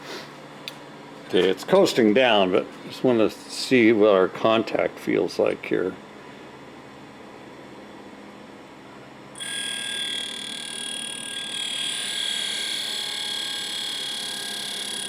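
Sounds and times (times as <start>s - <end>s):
grinder wheel grinding tool: 9.4s - 15.0s.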